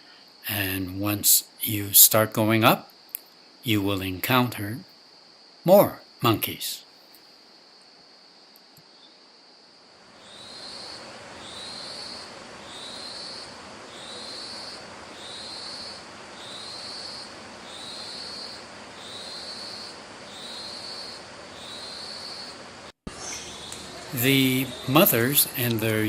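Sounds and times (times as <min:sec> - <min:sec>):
insect buzzing call: 0:07.5 - 0:26.0
steady high drone: 0:10.1 - 0:26.0.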